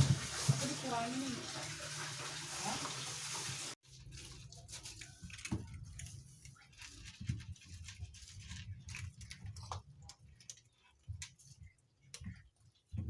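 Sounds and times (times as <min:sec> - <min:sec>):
running water rushing: 0:00.0 - 0:03.8.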